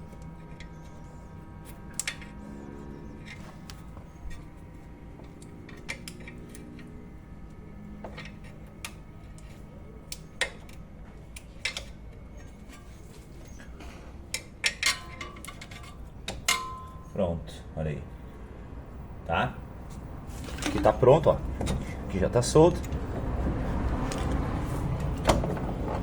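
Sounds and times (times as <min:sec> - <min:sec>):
steady low hum: 0:00.0 - 0:26.0
tools and metal parts clinking: 0:05.2 - 0:07.0, 0:07.8 - 0:17.2, 0:20.4 - 0:23.2.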